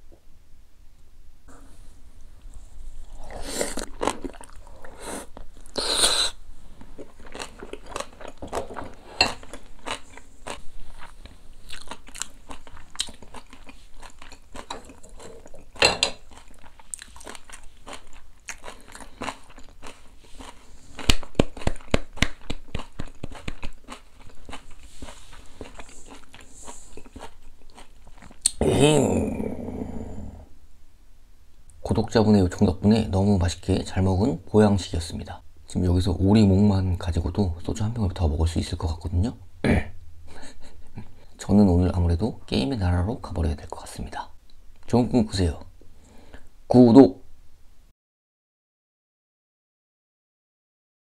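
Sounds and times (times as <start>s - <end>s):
person chewing with wet crunches: 3.0s - 28.6s.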